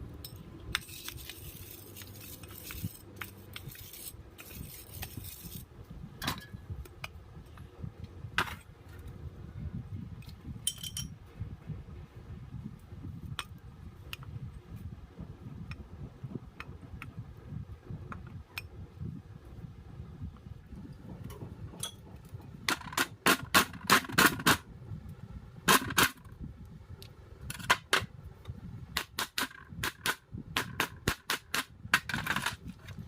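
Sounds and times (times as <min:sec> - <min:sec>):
low rumble: 0:05.6 - 0:22.7
metal tools clinking and tapping: 0:10.6 - 0:11.2, 0:21.8 - 0:22.0.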